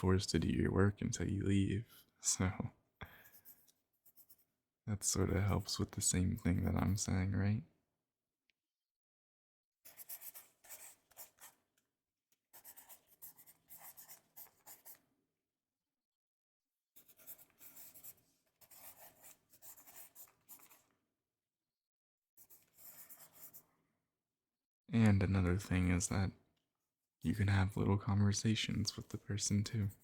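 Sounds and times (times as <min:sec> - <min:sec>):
faint writing on paper: 0:03.0 - 0:04.6, 0:09.8 - 0:11.7, 0:12.4 - 0:15.1, 0:17.0 - 0:21.0, 0:22.4 - 0:23.8, 0:29.0 - 0:30.0.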